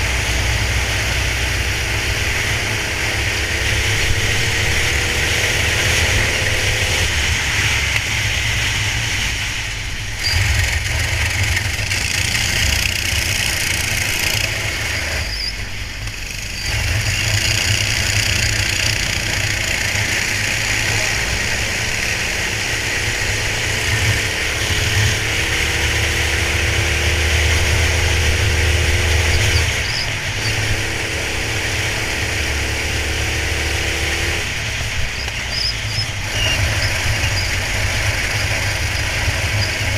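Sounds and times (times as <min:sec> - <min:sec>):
go-kart engine racing: 0:00.0 - 0:39.9.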